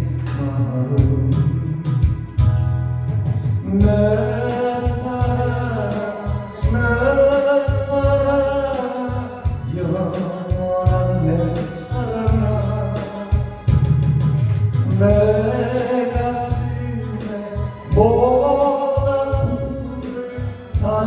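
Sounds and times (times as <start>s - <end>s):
instrumental accompaniment with bass: 0.0s - 21.0s
person singing long notes: 3.6s - 14.2s.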